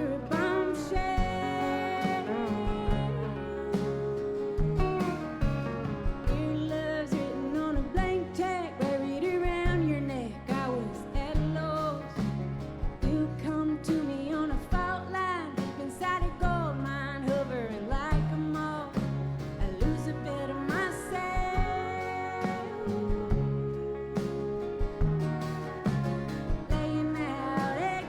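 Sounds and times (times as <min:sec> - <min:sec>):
sliding lead melody: 0:00.0 - 0:14.7, 0:18.4 - 0:28.0
live country-rock band: 0:00.0 - 0:28.0
drums beat: 0:00.3 - 0:08.2, 0:20.7 - 0:28.0.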